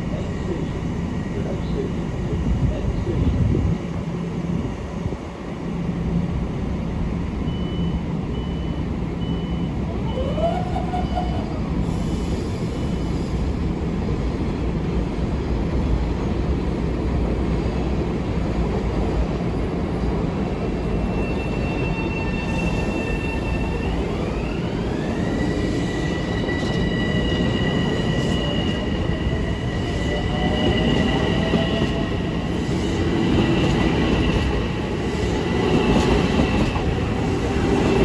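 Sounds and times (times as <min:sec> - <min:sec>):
train rumbling past: 0:00.0 - 0:38.0
high beep: 0:07.5 - 0:09.8.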